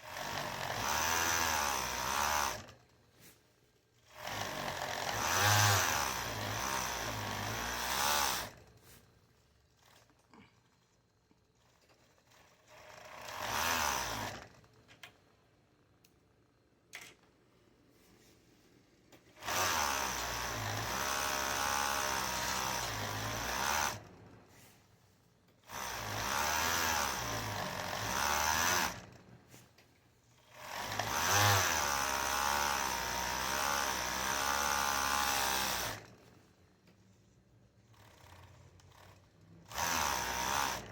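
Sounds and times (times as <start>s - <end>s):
sewing machine stitching: 0.0s - 2.8s, 4.1s - 8.7s, 9.7s - 14.9s, 19.3s - 24.1s, 25.6s - 29.3s, 30.4s - 36.2s, 37.8s - 40.9s.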